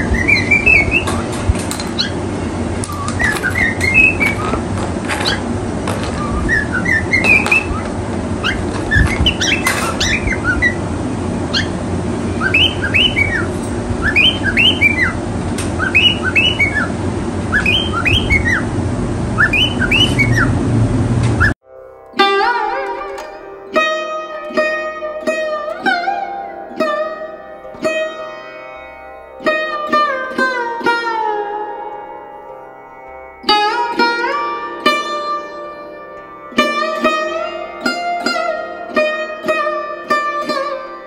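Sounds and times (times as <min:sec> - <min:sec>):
caged birds chirping: 0:00.0 - 0:21.6
steady low hum: 0:00.0 - 0:21.6.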